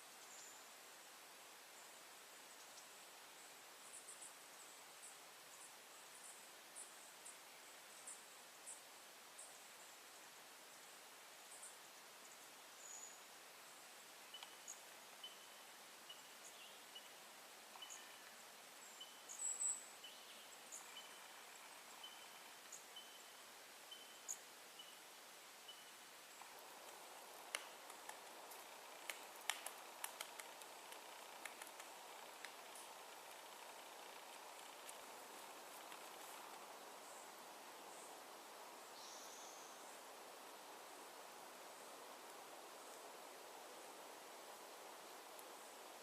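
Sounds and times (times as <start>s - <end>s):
sharp clicks: 26.8s - 33.4s.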